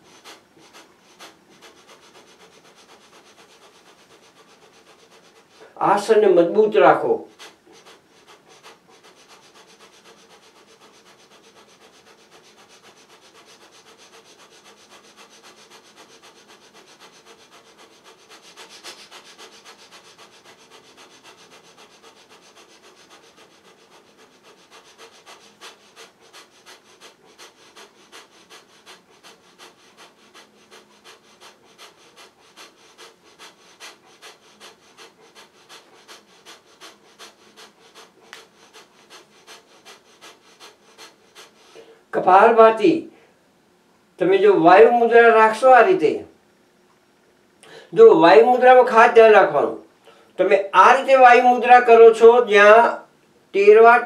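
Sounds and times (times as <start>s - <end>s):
forceful nasal exhalations: 7.2s - 42.1s, 47.6s - 48.0s.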